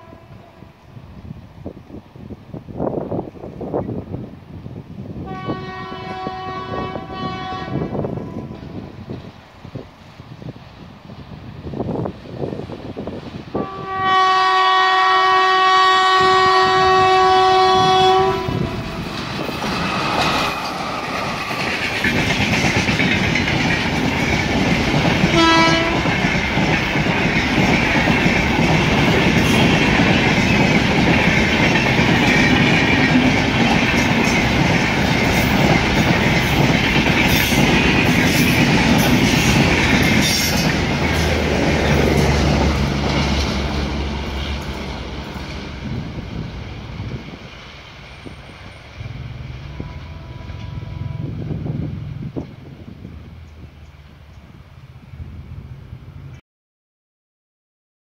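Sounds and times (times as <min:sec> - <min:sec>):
locomotive horn blasts: 0:00.0 - 0:00.7, 0:05.2 - 0:08.8, 0:13.6 - 0:19.0, 0:25.3 - 0:26.2, 0:49.6 - 0:52.0
train wheels rumbling on rail: 0:00.0 - 0:56.4
wheels clicking over rail joints: 0:19.0 - 0:45.6.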